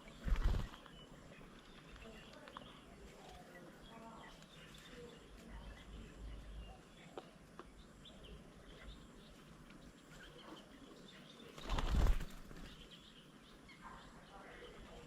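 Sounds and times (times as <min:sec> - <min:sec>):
bird wingbeats: 0:00.0 - 0:01.0, 0:11.5 - 0:12.9
faint bird chirps: 0:00.0 - 0:15.0.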